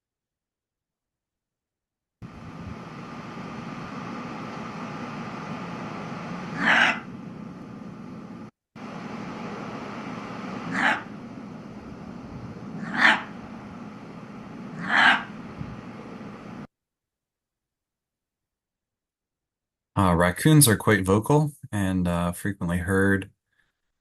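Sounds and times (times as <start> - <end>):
fox harsh calls: 6.5 - 7.1, 10.6 - 11.2, 12.7 - 13.4, 14.7 - 15.4.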